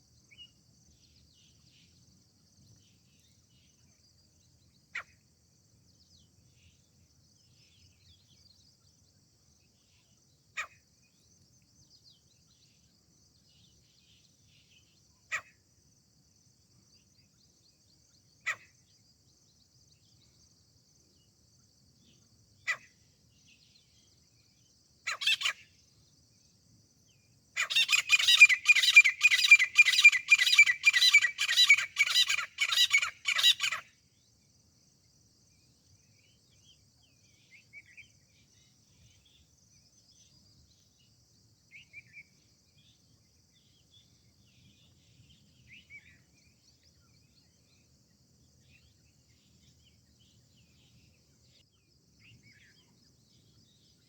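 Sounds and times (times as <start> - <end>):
faint bird chirps: 0.0 - 54.0
francolin harsh repeated calls: 22.6 - 23.0, 25.0 - 25.7, 27.6 - 33.9.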